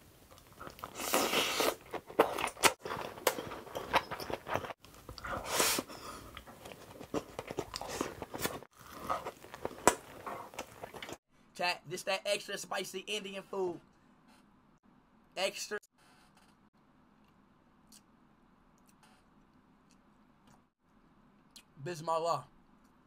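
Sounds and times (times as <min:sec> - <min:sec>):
biting and chewing rice: 0:00.2 - 0:11.2.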